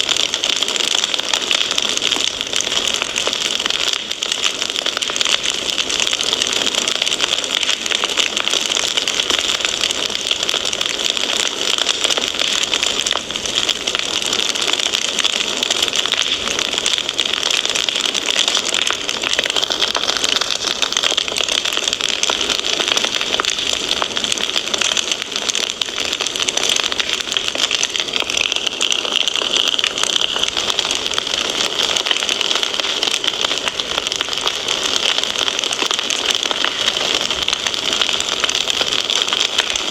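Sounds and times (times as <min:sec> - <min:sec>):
fireplace fire crackling: 0:00.0 - 0:39.9.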